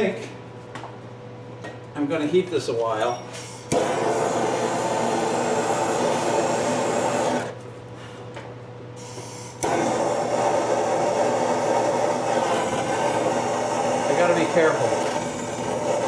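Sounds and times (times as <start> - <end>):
heating tool rushing: 3.7 - 7.5, 9.0 - 16.0.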